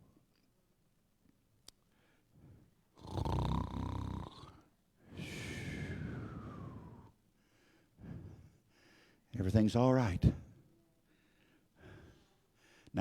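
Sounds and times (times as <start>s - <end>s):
man imitating snoring: 3.0s - 4.7s.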